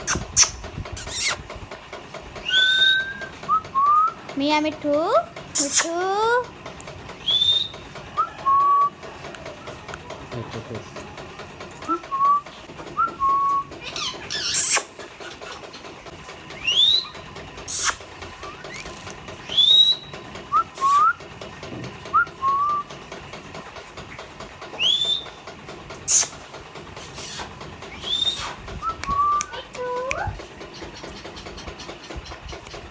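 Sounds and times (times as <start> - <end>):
parrots whistling: 2.4 - 4.2, 7.2 - 8.9, 13.0 - 15.6, 16.5 - 21.2, 24.8 - 25.4, 26.0 - 26.4, 27.1 - 32.0
parrot harsh screeches: 13.8 - 15.6.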